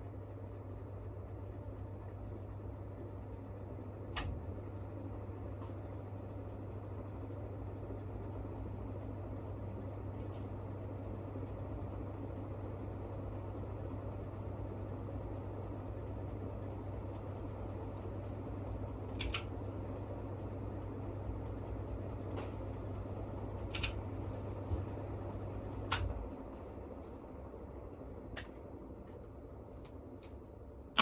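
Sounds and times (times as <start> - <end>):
ceiling fan humming: 0.0 - 31.0
sharp clicks: 19.2 - 19.5, 23.7 - 24.0.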